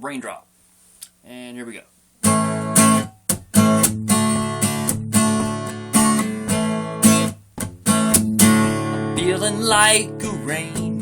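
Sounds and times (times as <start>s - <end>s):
acoustic guitar strumming chords: 2.2s - 11.0s.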